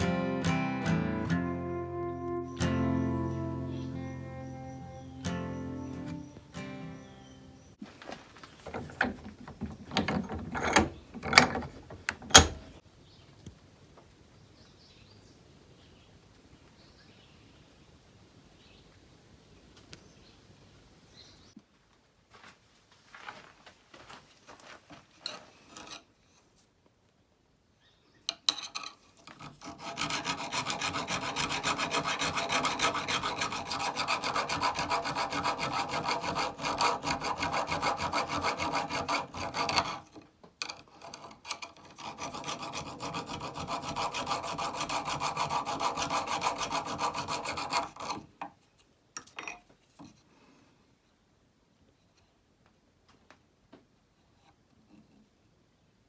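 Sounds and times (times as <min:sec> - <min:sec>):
scrubbing rust off metal chisel: 0:08.6 - 0:12.7, 0:28.5 - 0:48.3.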